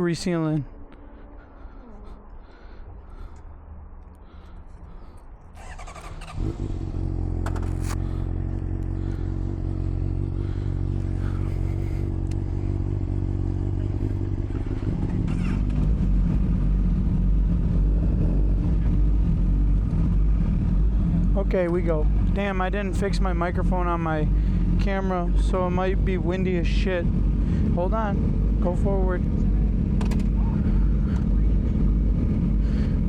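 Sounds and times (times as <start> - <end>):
motorcycle engine idling: 4.3 - 33.0
motorcycle starter cranking: 5.6 - 8.0.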